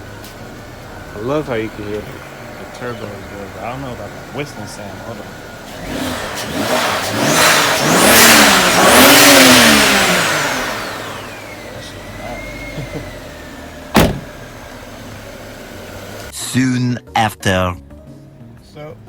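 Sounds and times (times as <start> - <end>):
car engine revving: 0.0 - 16.4.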